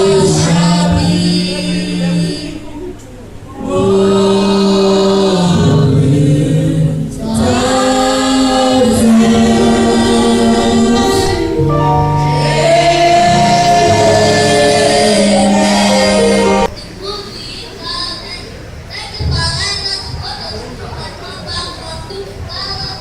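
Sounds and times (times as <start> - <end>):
choir singing in harmony: 0.0 - 2.3, 3.5 - 16.7.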